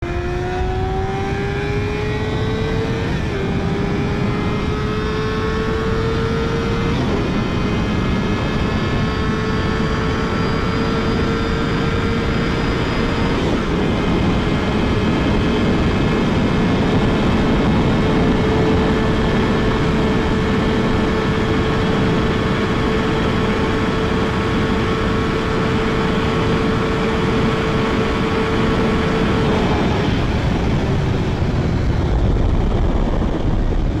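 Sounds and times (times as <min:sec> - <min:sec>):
heavy wind noise: 0:00.0 - 0:34.0
motorcycle engine at full throttle: 0:00.0 - 0:34.0.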